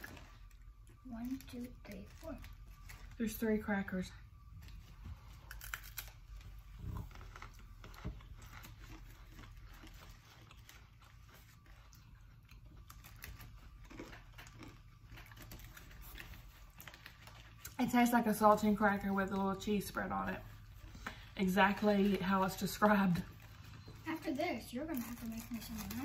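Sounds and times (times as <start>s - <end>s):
cracker crunching: 0.0s - 3.5s, 4.3s - 19.6s.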